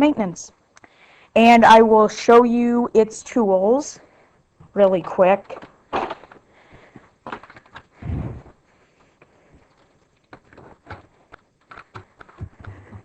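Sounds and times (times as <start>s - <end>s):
vacuum attachments clicking and knocking: 9.1s - 13.0s.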